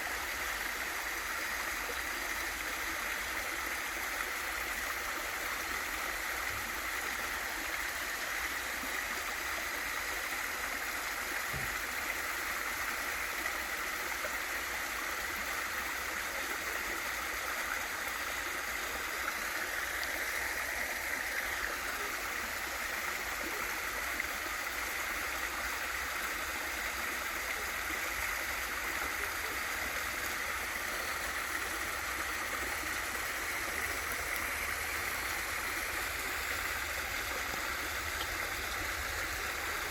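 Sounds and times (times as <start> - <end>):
water rushing over rocks: 18.1 - 24.0, 26.9 - 39.9.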